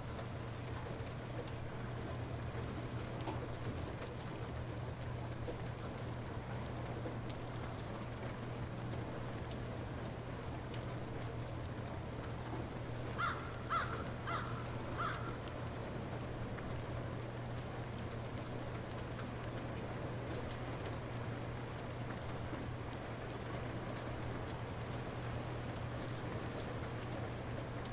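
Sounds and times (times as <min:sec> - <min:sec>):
light rain: 0:00.0 - 0:27.9
bird calling: 0:13.2 - 0:15.5.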